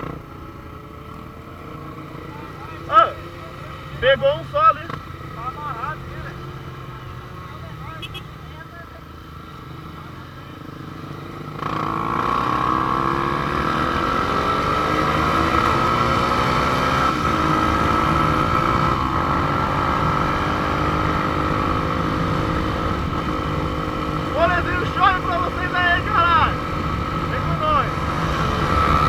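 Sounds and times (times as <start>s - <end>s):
motorcycle engine accelerating: 0.0s - 29.0s
rushing wind: 11.8s - 29.0s.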